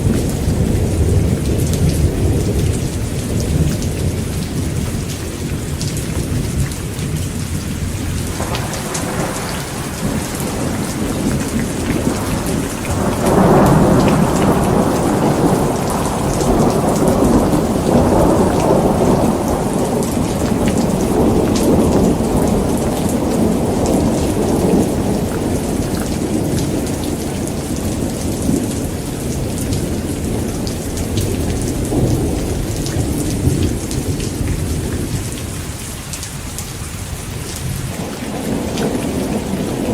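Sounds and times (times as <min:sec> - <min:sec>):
thunder rumbling: 0:00.0 - 0:35.8, 0:37.1 - 0:39.9
heavy rain falling: 0:00.0 - 0:39.9.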